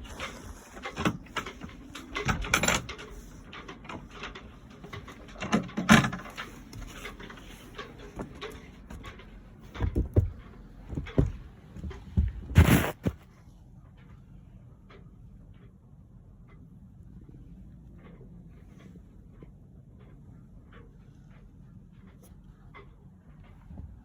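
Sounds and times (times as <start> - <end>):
hatch latch clicks and clunks: 5.3 - 6.9.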